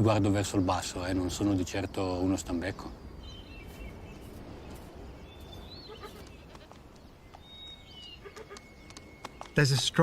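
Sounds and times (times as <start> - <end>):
whistled bird calls: 3.0 - 10.0
hooves clicking on stone: 6.0 - 10.0.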